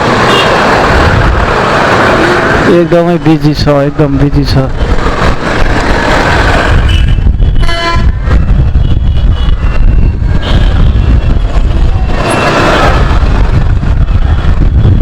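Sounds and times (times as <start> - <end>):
wind on microphone: 0.0 - 2.8, 3.4 - 15.0
motorcycle rumble: 0.0 - 3.0, 4.1 - 15.0
vehicle horn: 0.3 - 0.6, 6.8 - 8.2, 8.8 - 9.8, 10.4 - 11.4.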